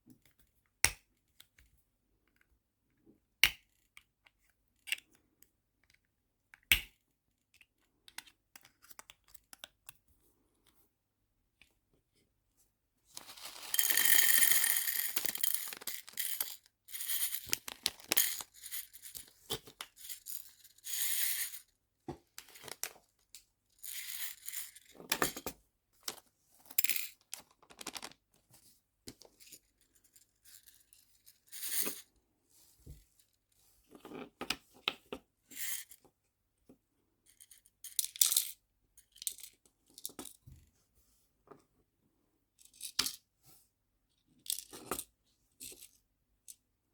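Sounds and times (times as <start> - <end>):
plastic packaging rustling: 13.2 - 14.2, 27.5 - 28.2
small charms clicking and rattling: 13.2 - 19.3.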